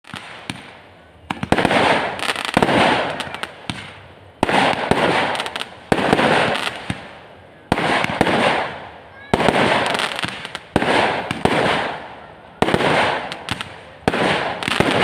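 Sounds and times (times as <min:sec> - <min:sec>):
firecracker sharp pops: 0:00.0 - 0:15.0
firecrackers hissing and crackling: 0:00.0 - 0:15.0
single firecracker cracks: 0:00.1 - 0:15.0.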